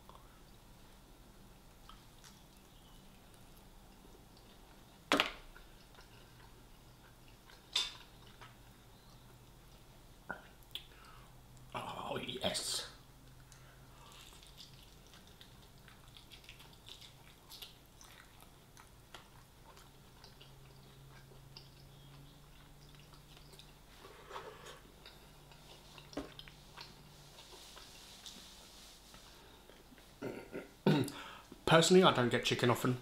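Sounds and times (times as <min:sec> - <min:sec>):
low steady hum: 0:00.0 - 0:33.0
chewing with wet clicks: 0:01.6 - 0:11.7, 0:13.2 - 0:24.0, 0:24.8 - 0:28.4.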